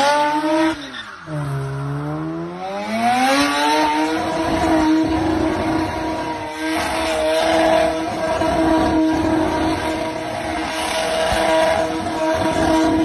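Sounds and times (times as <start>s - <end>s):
rotary engine at high revs: 0.0s - 13.0s.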